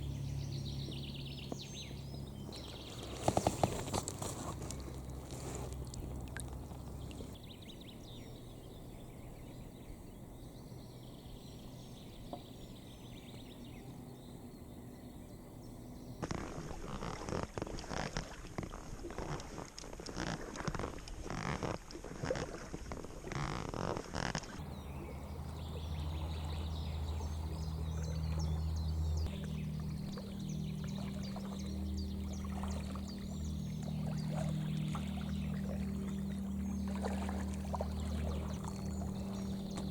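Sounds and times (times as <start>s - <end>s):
low steady hum: 0.0s - 16.8s, 24.4s - 39.9s
paddle splashing water: 0.9s - 7.4s, 16.2s - 39.9s.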